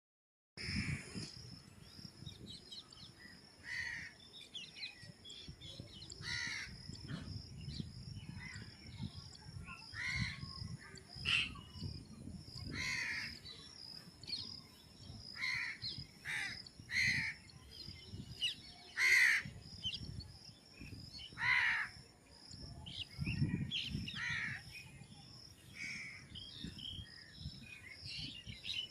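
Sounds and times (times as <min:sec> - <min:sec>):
crows cawing: 0:03.6 - 0:04.2, 0:06.2 - 0:06.7, 0:12.7 - 0:13.4, 0:15.4 - 0:17.4, 0:19.0 - 0:19.5, 0:21.4 - 0:21.9.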